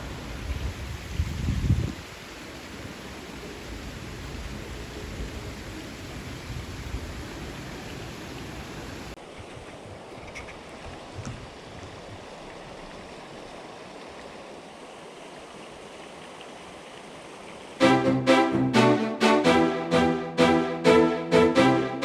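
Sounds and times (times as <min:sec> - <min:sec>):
wind rumble on microphone: 0:00.0 - 0:02.0, 0:03.8 - 0:07.7
creek water rushing: 0:11.5 - 0:22.0.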